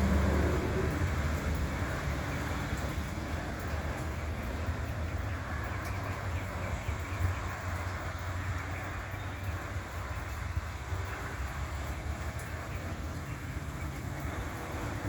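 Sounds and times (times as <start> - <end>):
low vehicle rumble: 0.0 - 8.4.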